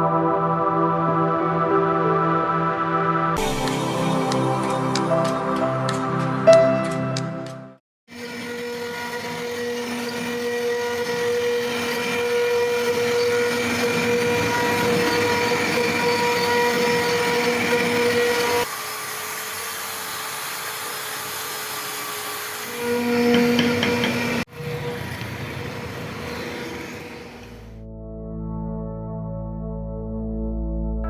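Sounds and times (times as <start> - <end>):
cutting noise: 3.4 - 7.6
cnc router spindle whine: 8.1 - 27.7.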